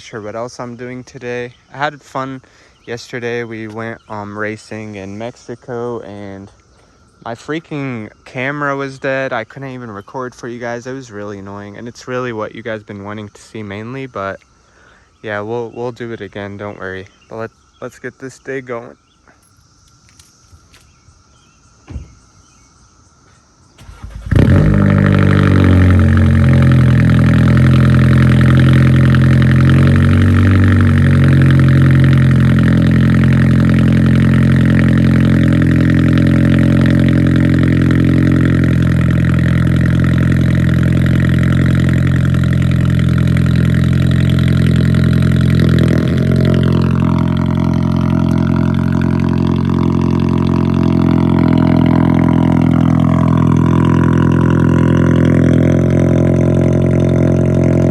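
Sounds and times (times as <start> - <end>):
car engine starting and idling: 23.8 - 57.9.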